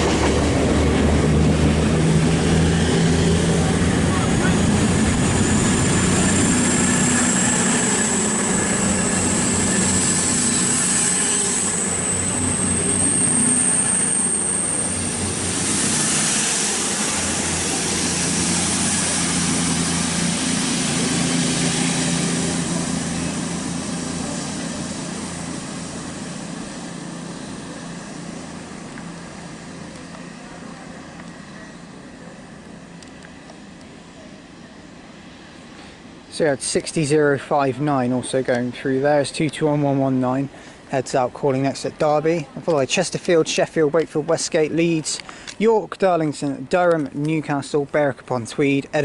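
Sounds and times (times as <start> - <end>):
high whine: 0.0 - 36.9
freight train passing: 0.0 - 49.0.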